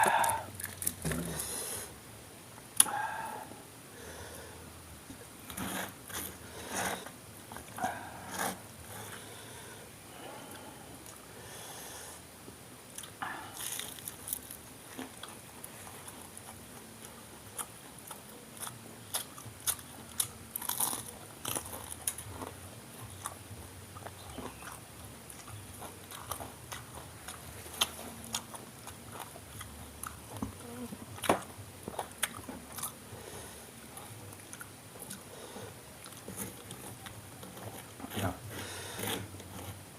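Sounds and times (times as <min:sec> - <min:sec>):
person crunching crispy fried snacks: 0:13.6 - 0:14.6, 0:18.6 - 0:22.5.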